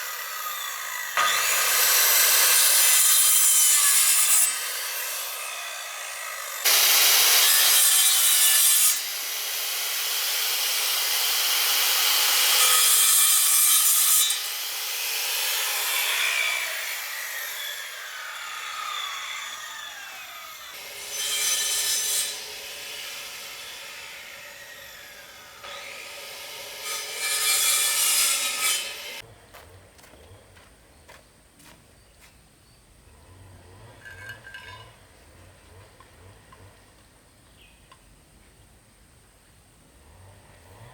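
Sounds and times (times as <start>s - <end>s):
saw cutting through wood: 0.0s - 29.3s.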